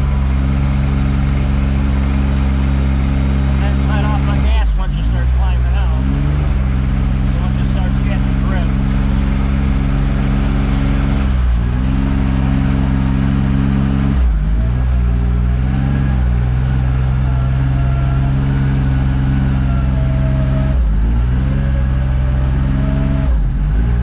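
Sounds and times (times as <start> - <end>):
off-road vehicle engine running: 0.0 - 24.0.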